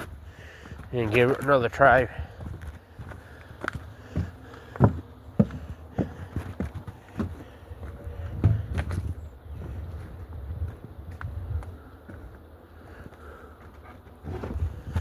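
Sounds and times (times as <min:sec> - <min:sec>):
knocks and clunks: 0:04.1 - 0:09.8.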